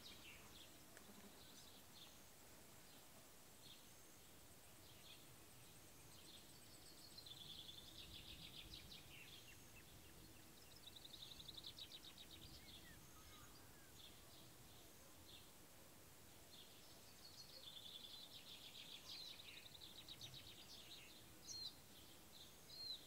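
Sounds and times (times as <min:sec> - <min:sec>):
quiet rural background: 0:00.0 - 0:23.0.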